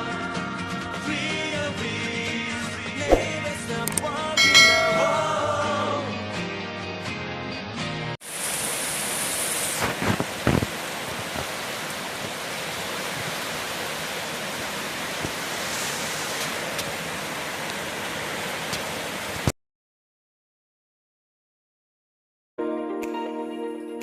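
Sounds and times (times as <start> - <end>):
heavy rainfall: 8.2 - 19.5.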